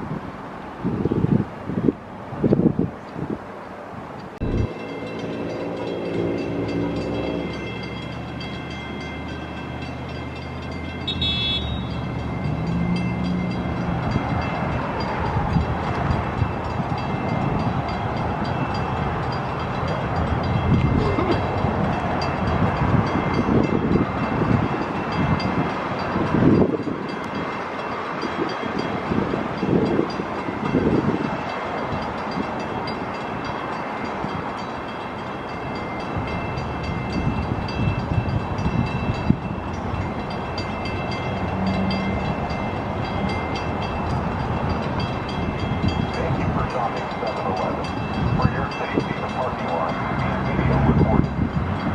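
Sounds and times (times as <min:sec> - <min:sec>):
train horn chord: 0:11.0 - 0:12.1
train wheels clattering on rail: 0:11.8 - 0:48.4.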